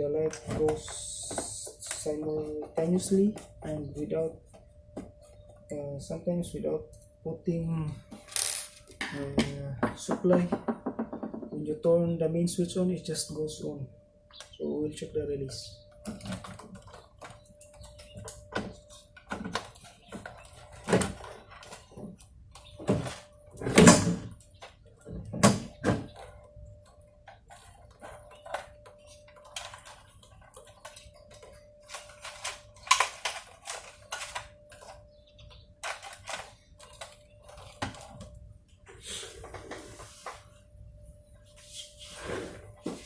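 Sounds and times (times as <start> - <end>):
faint steady high tone: 0.0 - 10.2, 11.7 - 21.0
small hard objects clicking and knocking: 8.2 - 9.2.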